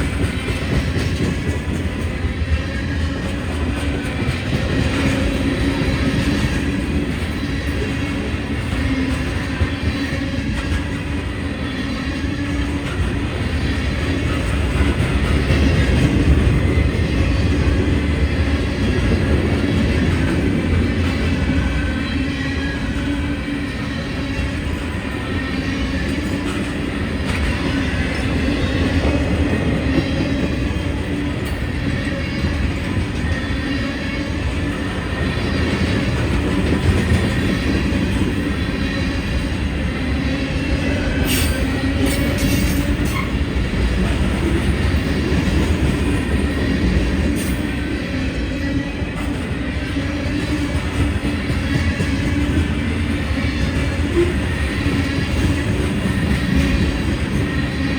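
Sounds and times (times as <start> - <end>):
train wheels rumbling on rail: 0.0 - 57.9.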